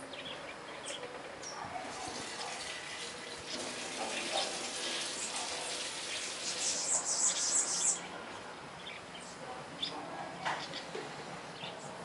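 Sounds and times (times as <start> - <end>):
small birds chirping: 0.0 - 12.0
high thin twittering: 6.0 - 8.0.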